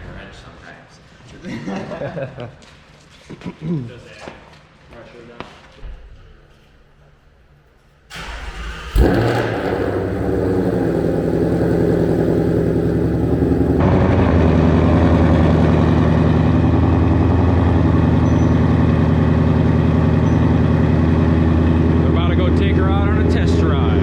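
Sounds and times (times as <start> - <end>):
car starter cranking: 8.1 - 13.8
car engine idling: 8.1 - 23.2.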